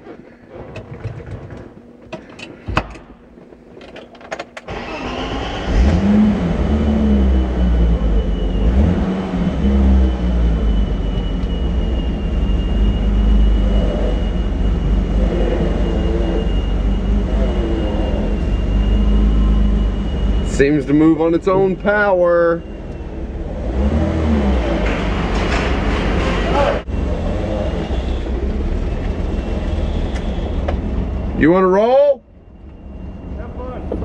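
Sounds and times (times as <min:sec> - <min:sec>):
car engine starting and idling: 0:04.2 - 0:34.0.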